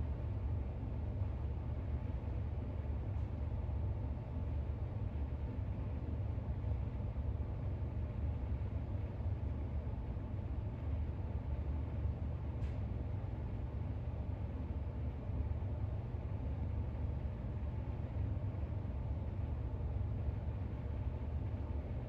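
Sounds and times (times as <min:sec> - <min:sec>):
low rumble with faint hiss: 0:00.0 - 0:22.0.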